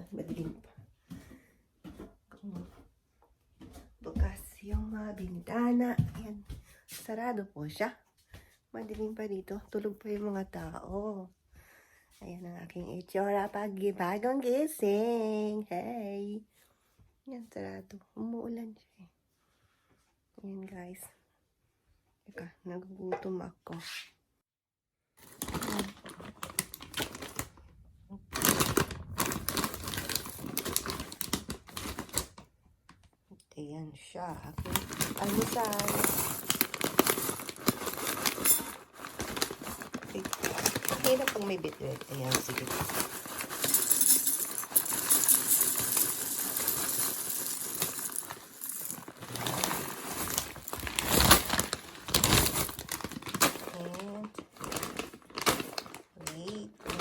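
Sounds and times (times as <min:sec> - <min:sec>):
cereal rattling into a bowl: 0:28.4 - 0:32.2, 0:34.6 - 0:56.0.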